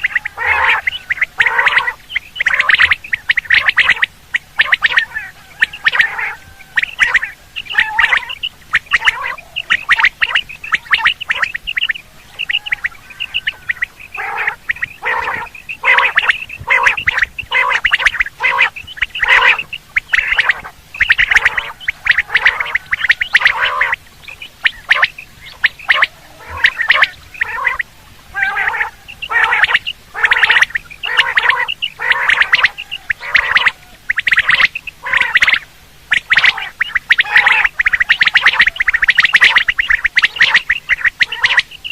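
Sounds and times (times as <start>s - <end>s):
quail calling: 0.0s - 41.9s.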